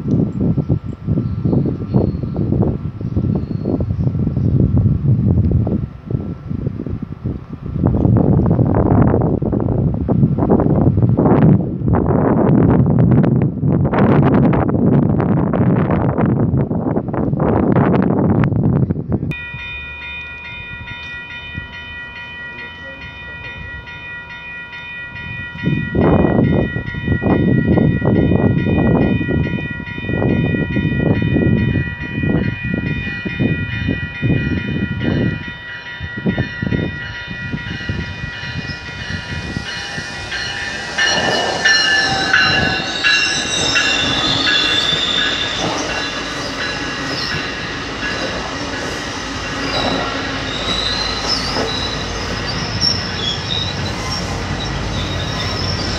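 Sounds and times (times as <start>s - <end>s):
steady train whine: 0.0s - 55.9s
high-pitched wheel squeal: 37.7s - 55.9s
train wheels clattering over joints: 38.4s - 54.3s.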